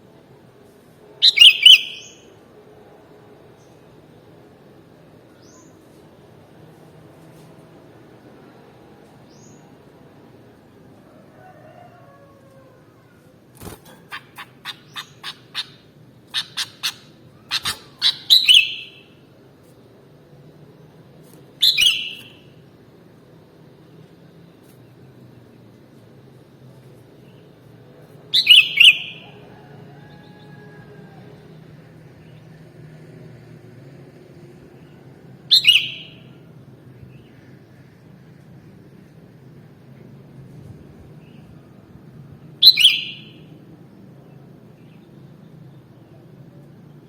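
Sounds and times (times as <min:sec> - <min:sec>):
low background hum: 0:00.0 - 0:47.0
bird chirping: 0:01.2 - 0:02.3, 0:14.0 - 0:19.2, 0:21.6 - 0:22.5, 0:28.3 - 0:29.4, 0:35.5 - 0:36.4, 0:42.6 - 0:43.5
bird warbling: 0:13.8 - 0:19.1.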